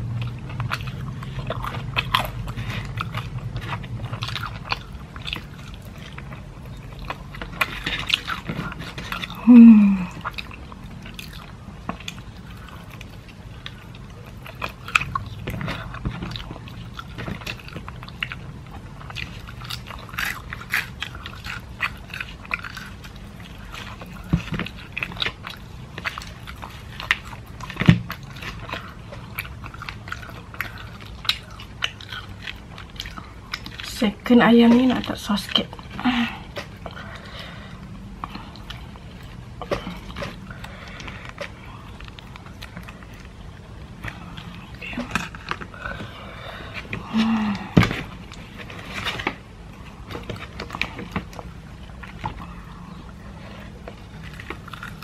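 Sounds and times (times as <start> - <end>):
chewing crispy chicken: 0.0 - 55.0
person humming: 9.4 - 10.2.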